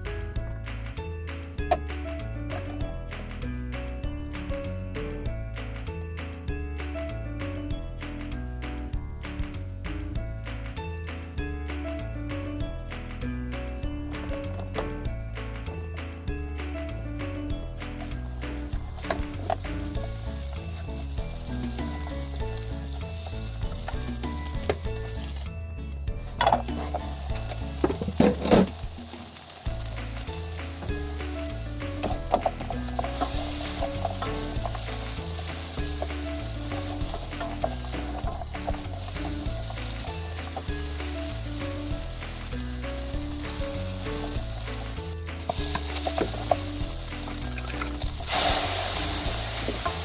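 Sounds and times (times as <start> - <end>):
simple background tune: 0.0 - 50.0
food sizzling in a frying pan: 17.9 - 25.5, 26.5 - 50.0
stirring and scraping in pan: 26.3 - 50.0.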